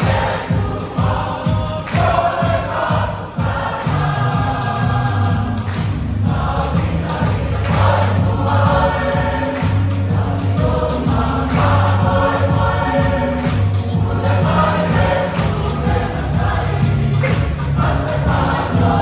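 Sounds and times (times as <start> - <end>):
choir singing a hymn: 0.0 - 19.0
instrumental backing with bass: 3.9 - 19.0.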